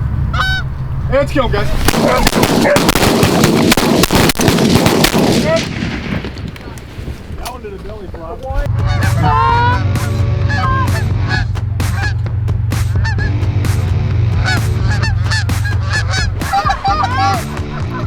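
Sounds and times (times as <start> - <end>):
geese honking and clucking: 0.0 - 0.9, 8.7 - 18.0
steady low hum: 0.0 - 6.1, 8.6 - 18.0.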